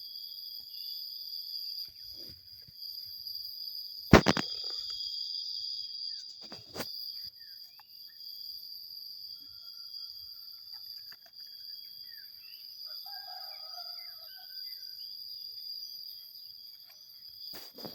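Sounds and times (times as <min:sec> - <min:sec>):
high insect drone: 0:00.0 - 0:17.9
distant rooster crowing: 0:12.9 - 0:15.0.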